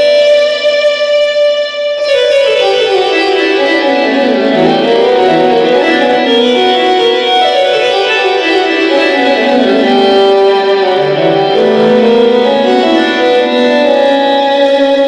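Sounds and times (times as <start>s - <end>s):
keyboard playing chord and notes: 0.0s - 15.0s.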